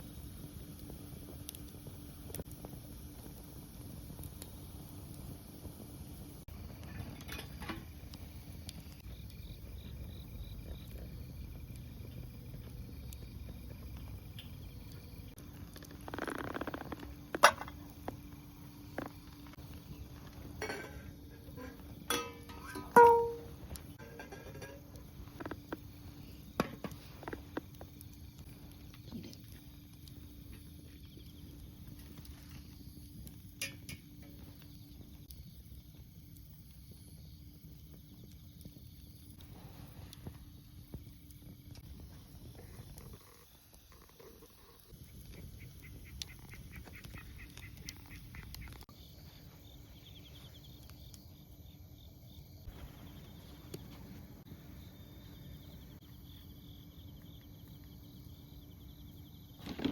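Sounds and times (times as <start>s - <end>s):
wood stove fire crackling: 0.0s - 51.4s, 52.6s - 59.9s
faint insects chirping: 0.0s - 59.9s
sharp fire pop: 22.1s - 24.8s.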